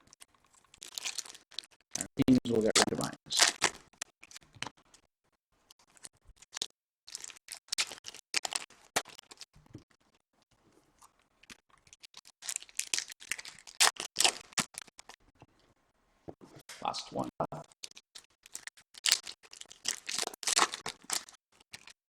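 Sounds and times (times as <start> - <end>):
foil wrappers crinkling and tearing: 0.7 - 1.9, 5.8 - 9.5, 11.5 - 15.2, 17.8 - 22.0.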